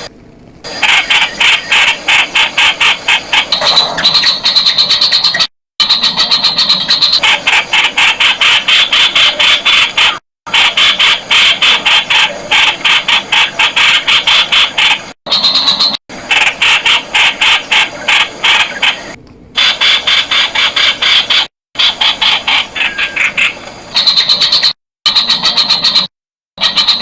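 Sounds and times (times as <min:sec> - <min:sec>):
bird calling sharp notes: 0:00.7 - 0:27.0.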